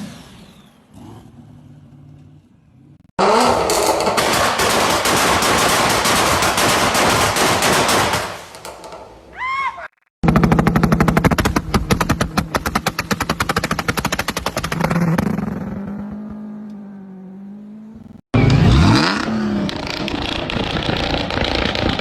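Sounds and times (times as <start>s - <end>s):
engine revving: 0.0s - 6.2s, 10.2s - 22.0s
car exhaust popping: 3.2s - 8.0s, 10.2s - 16.4s, 18.6s - 22.0s.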